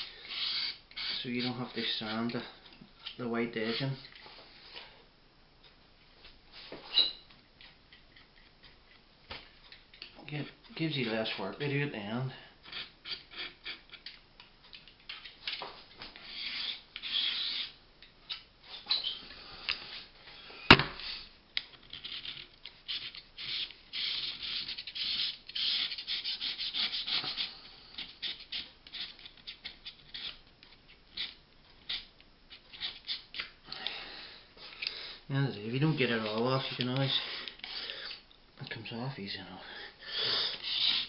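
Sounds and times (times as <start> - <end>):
sharp knock: 20.7 - 21.0
filler scraping: 40.4 - 41.0.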